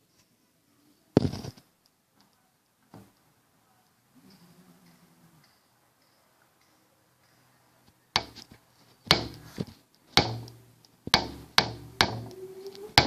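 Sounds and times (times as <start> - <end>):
sharp knocks with ringing tail: 9.1 - 9.6, 10.2 - 12.4.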